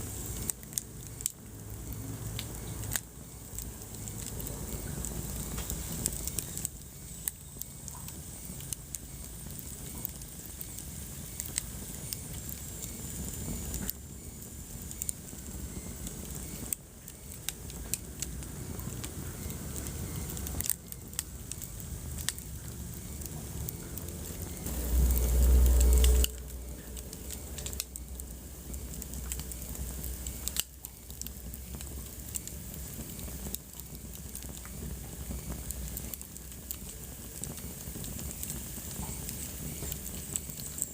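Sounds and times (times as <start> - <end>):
wood fire crackling: 0.0 - 40.9
deep low rumble: 22.2 - 30.5.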